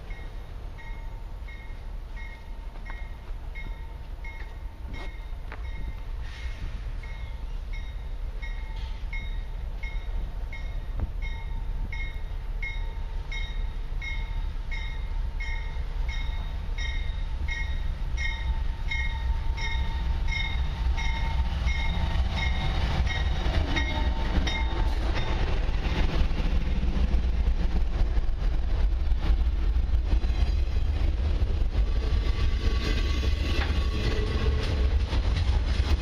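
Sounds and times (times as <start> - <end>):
locomotive bell ringing: 0.0 - 6.1, 7.0 - 25.5
freight train rumble: 0.0 - 36.0.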